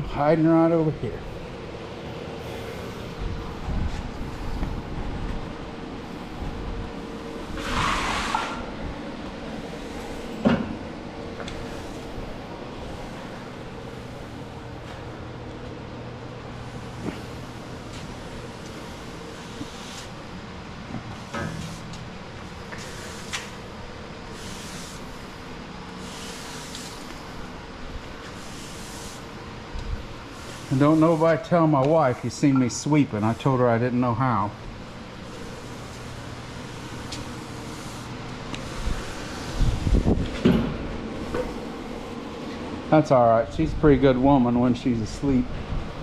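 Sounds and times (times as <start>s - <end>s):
broom sweeping floor: 6.1s - 15.1s, 16.6s - 29.4s, 30.0s - 34.5s, 35.1s - 42.7s
broom scraping swish: 6.2s - 10.4s, 35.2s - 40.2s.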